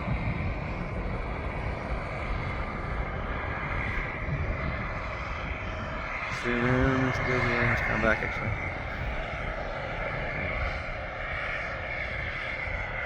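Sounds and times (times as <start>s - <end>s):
helicopter engine whine: 0.0s - 13.0s
helicopter low rumble: 0.0s - 13.0s.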